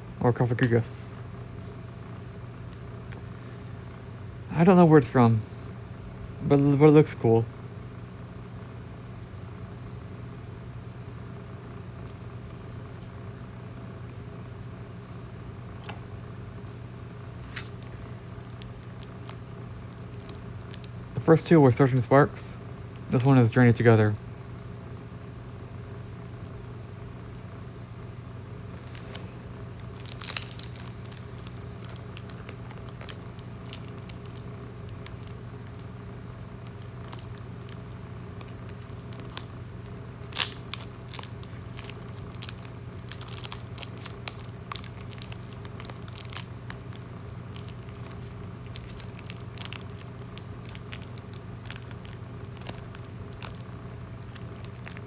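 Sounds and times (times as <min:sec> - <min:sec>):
foil wrapper crinkling and tearing: 0:17.4 - 0:21.5, 0:28.8 - 0:55.0.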